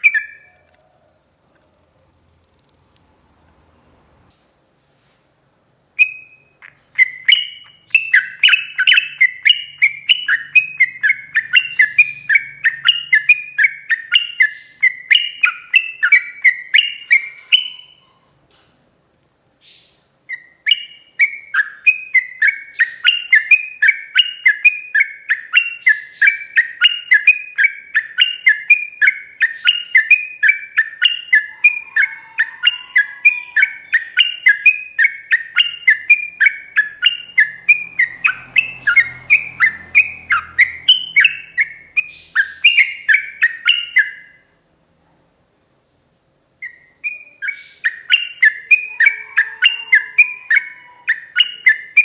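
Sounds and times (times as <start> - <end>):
bulbul singing whistled notes: 19.7 - 44.4.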